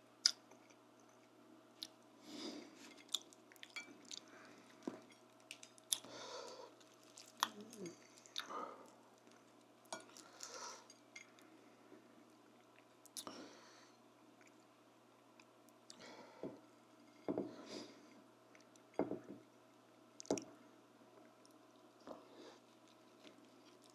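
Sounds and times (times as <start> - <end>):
chewing food: 2.8 - 11.4, 21.2 - 23.9.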